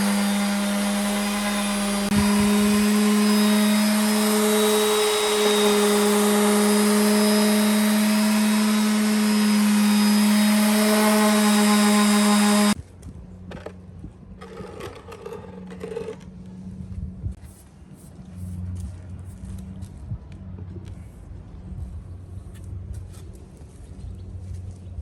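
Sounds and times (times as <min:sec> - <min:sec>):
electric power tool humming: 0:00.0 - 0:12.8.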